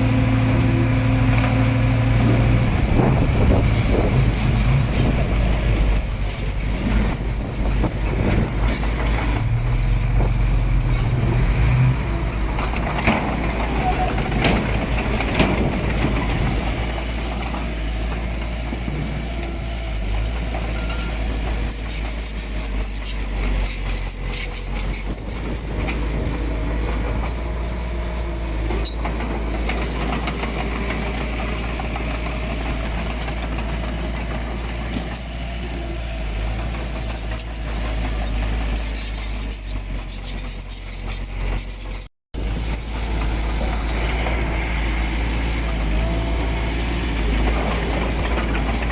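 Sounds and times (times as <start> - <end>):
heavy diesel machinery rumbling: 0.0 - 48.9
metal rattles and clanks: 1.3 - 19.2.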